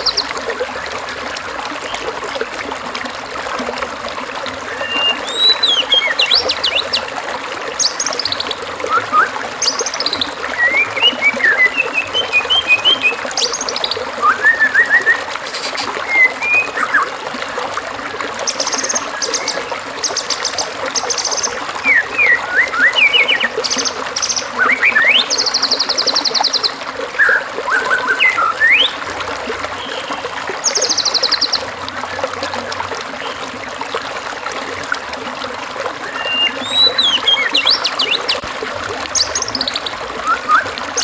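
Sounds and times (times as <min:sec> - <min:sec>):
running water trickling: 0:00.0 - 0:41.0
bird singing: 0:04.8 - 0:07.0, 0:07.8 - 0:17.1, 0:18.5 - 0:29.0, 0:36.1 - 0:38.4.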